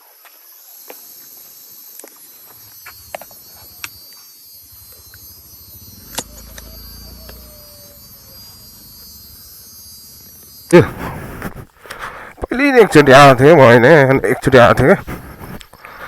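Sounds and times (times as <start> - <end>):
high-pitched insect buzz: 0.0 - 16.0
sharp clicks: 4.9 - 7.5.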